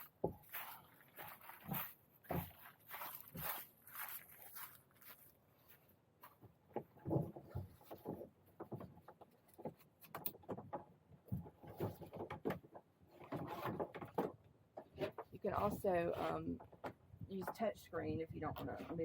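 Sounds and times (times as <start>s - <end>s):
plastic kayak knocking and scraping: 0.0s - 3.6s, 6.3s - 19.0s.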